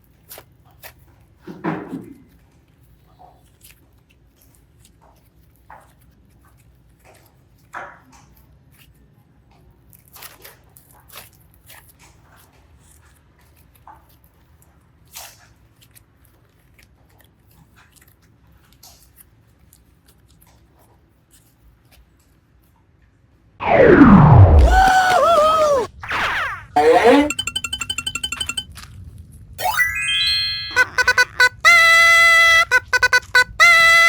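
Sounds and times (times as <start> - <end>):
cartoon sliding down effect: 23.6 - 28.7, 29.6 - 34.0.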